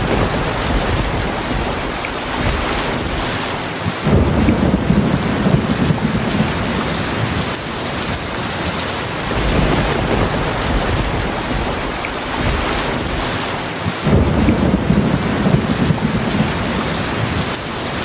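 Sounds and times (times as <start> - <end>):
heavy rain falling: 0.0 - 18.0
thunder rumbling: 0.0 - 18.0.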